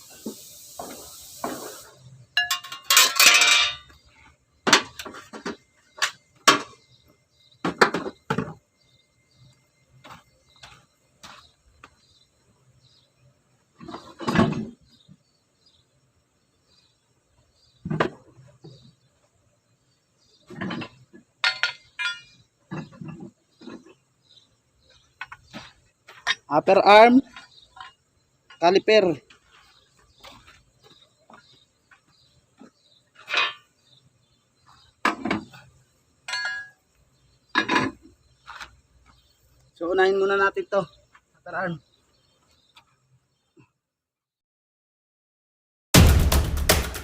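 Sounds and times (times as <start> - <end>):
metal parts clanking: 2.4 - 4.0, 20.5 - 23.9.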